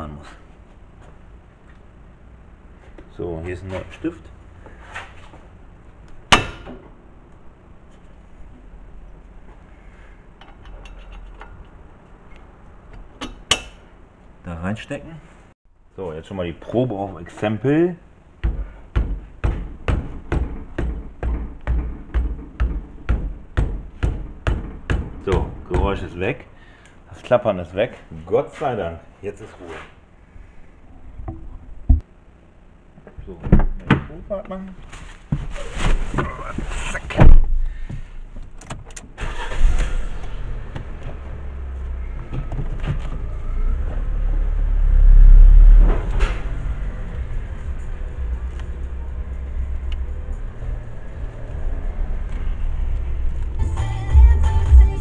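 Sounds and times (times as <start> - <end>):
dull knocks on car wheel: 18.4 - 26.0
car engine starting and running: 39.0 - 55.0.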